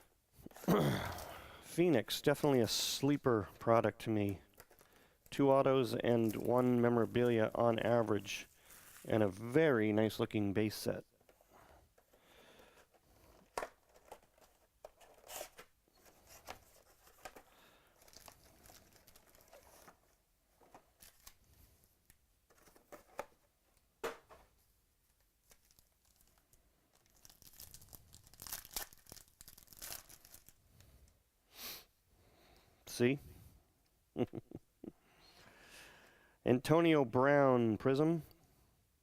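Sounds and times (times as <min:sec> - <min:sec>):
wrappers tearing and crinkling: 0:08.5 - 0:09.6, 0:16.8 - 0:20.0, 0:21.0 - 0:21.4, 0:25.4 - 0:30.6.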